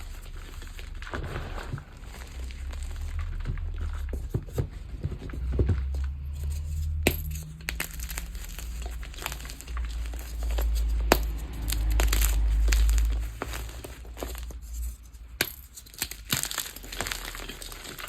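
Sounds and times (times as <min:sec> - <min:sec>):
low handling rumble: 0:00.0 - 0:15.3
chalk crushed by hand: 0:06.5 - 0:18.0.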